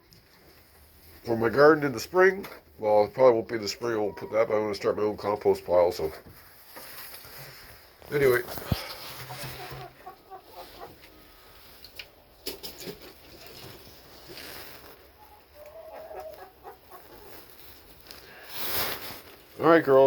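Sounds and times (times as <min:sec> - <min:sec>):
chickens clucking: 0:02.3 - 0:05.2, 0:08.1 - 0:18.0.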